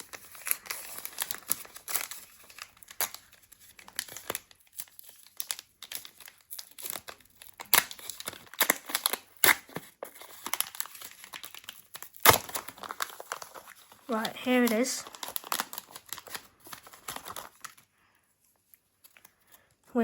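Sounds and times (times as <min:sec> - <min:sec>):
card pack wrapper tearing and crinkling: 0:00.0 - 0:17.9, 0:18.6 - 0:19.7.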